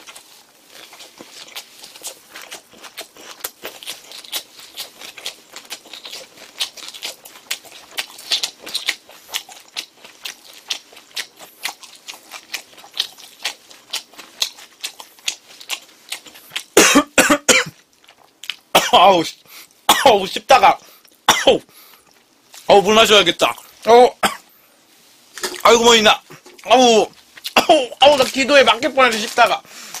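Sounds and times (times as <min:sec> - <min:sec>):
wet chewing: 0:00.0 - 0:16.8, 0:17.7 - 0:18.7, 0:25.4 - 0:30.0.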